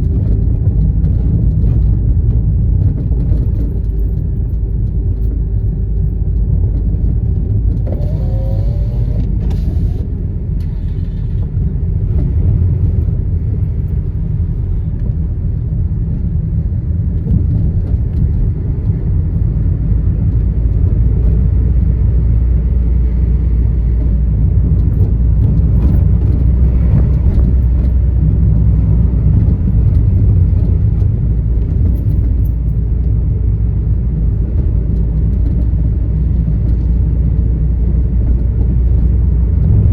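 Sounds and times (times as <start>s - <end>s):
car driving in traffic: 0.0s - 39.9s
short rising whine: 7.8s - 11.2s.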